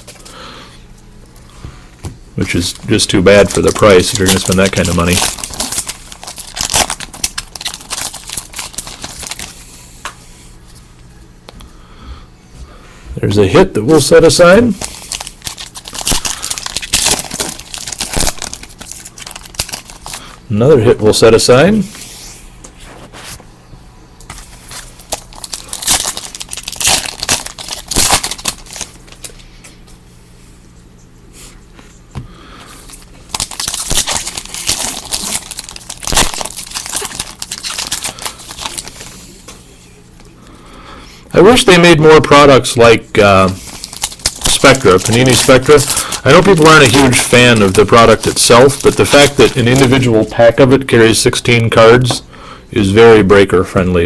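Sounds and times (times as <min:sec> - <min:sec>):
wrappers crinkling: 0:02.4 - 0:09.7, 0:13.9 - 0:20.4, 0:24.4 - 0:29.4, 0:32.8 - 0:39.2, 0:43.2 - 0:51.7.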